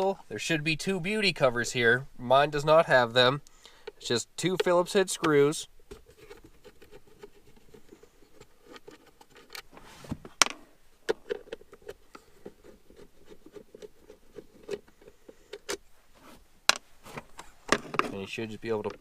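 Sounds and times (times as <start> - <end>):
screwdriver ticks and scrapes: 6.2 - 9.7, 11.1 - 15.8.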